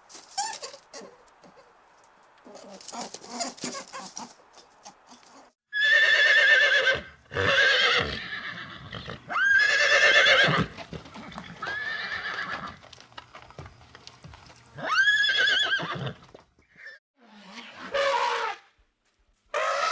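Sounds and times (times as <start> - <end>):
horse neighing: 5.7 - 12.7, 14.8 - 16.2.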